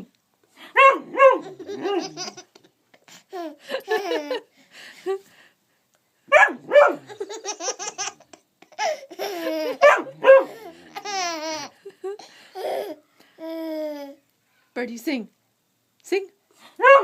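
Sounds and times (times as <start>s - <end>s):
dog barking: 0.8s - 2.2s, 6.3s - 7.1s, 9.8s - 10.6s, 16.8s - 17.0s
baby laughing: 1.4s - 4.5s, 6.9s - 14.2s.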